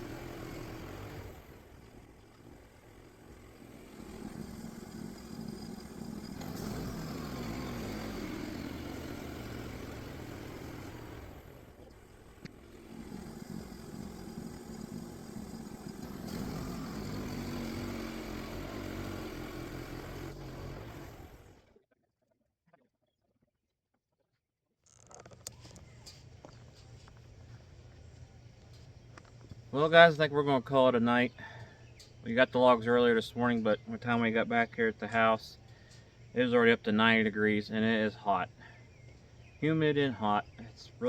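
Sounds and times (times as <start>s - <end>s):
saw blade cutting log: 0.0s - 1.5s, 2.3s - 11.4s, 12.4s - 21.6s
sawmill gas engine under load: 0.0s - 21.7s, 25.2s - 41.0s.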